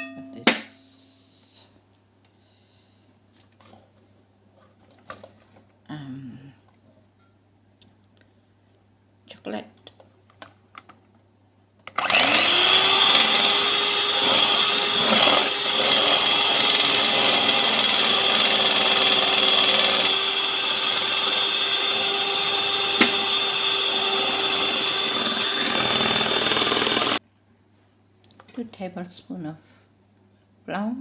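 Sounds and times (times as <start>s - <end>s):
electric mixer running: 11.9s - 27.2s.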